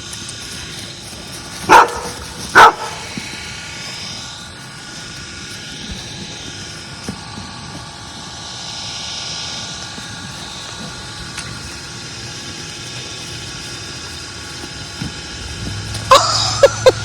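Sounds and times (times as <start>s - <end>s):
steady background noise: 0.0s - 17.0s
dog barking: 1.7s - 3.0s.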